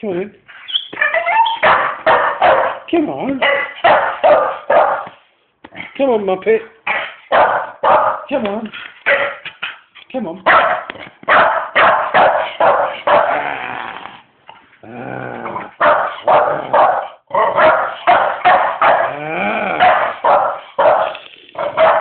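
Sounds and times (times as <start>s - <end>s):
puppy barking: 0.9s - 5.2s, 6.9s - 8.3s, 9.1s - 9.4s, 10.5s - 13.4s, 15.8s - 19.2s, 19.8s - 22.0s.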